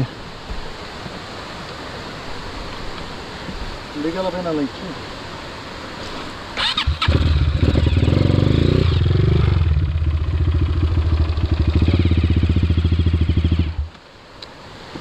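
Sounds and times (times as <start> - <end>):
dirt bike engine running: 7.1 - 13.9.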